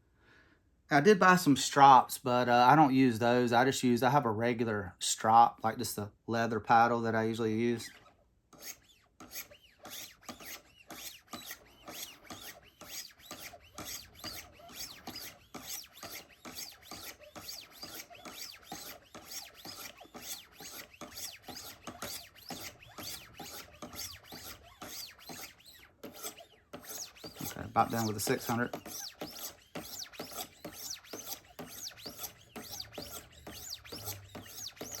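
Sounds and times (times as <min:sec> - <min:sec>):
sharpening stone rasping on knife: 0:08.6 - 0:35.0.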